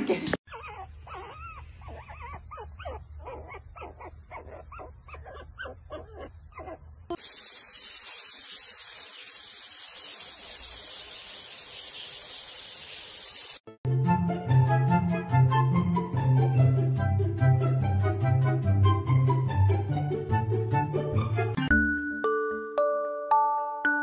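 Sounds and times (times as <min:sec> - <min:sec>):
animal whimpering: 0:00.5 - 0:07.0
hiss of spraying water: 0:07.1 - 0:13.7
flute music: 0:13.9 - 0:22.4.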